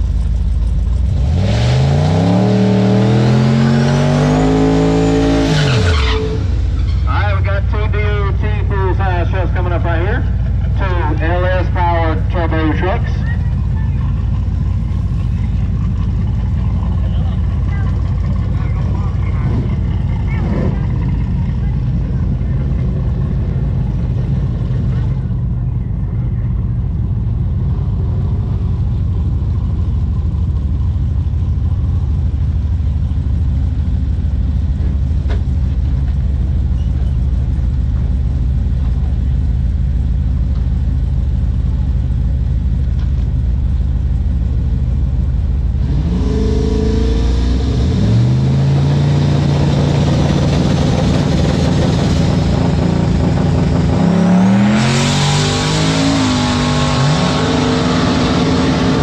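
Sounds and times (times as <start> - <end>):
engine low rumble: 0.0 - 59.0
pickup truck engines revving: 0.0 - 59.0.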